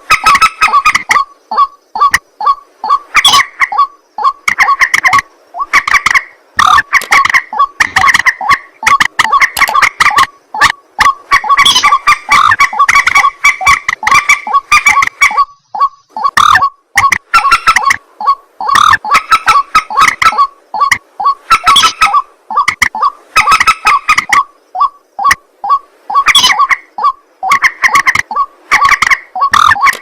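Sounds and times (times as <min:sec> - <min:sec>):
waterhen calling harsh honking notes: 0:11.0 - 0:30.0.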